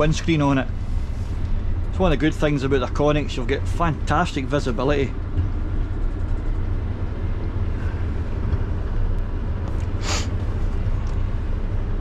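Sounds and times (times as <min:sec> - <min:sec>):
truck engine and road rumble: 0:00.0 - 0:12.0
air hiss: 0:09.9 - 0:10.4.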